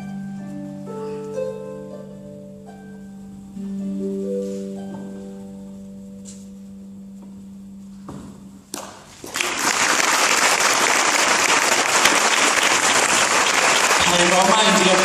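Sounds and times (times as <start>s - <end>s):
audience applause: 9.2s - 15.0s.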